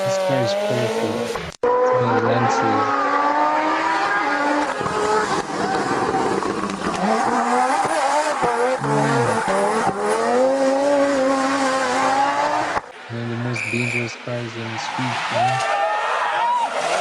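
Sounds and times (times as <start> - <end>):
car engine revving hard: 0.0 - 12.8
tyre and road noise: 0.0 - 17.0.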